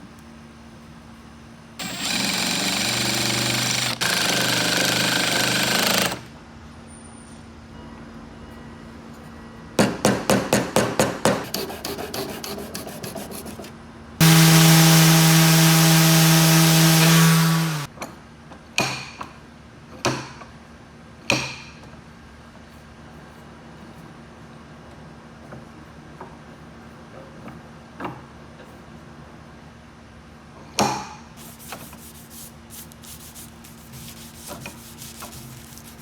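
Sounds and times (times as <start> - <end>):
power tool motor hum: 1.8 - 6.3, 14.2 - 17.9.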